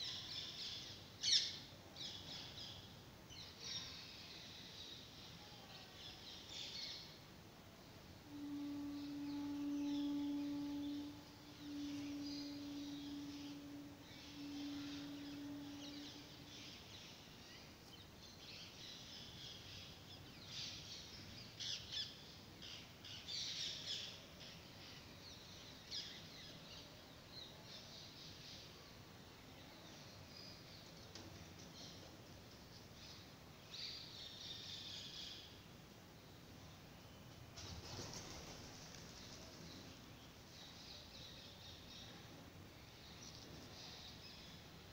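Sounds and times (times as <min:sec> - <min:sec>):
low steady hum: 0:00.0 - 0:44.9
bird calls: 0:08.3 - 0:18.0.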